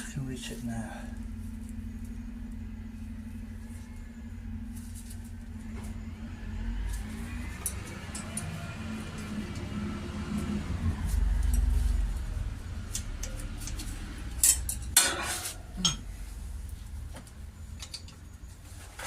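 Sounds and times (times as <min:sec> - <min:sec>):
low rumble: 0:00.0 - 0:18.5
spanner clinking on metal: 0:12.9 - 0:16.1.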